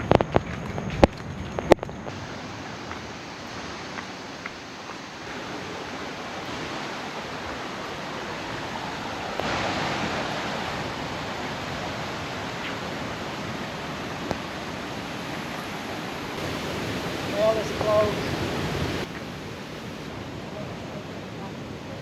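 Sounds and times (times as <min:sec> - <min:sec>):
waves breaking: 0:00.0 - 0:22.0.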